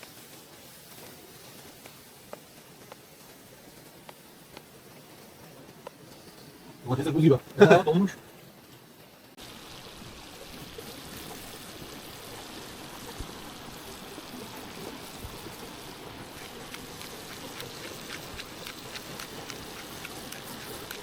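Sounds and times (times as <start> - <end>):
tomatoes sizzling in a pan: 0.0 - 8.0, 9.4 - 21.0
sharp crackling pops: 14.3 - 21.0.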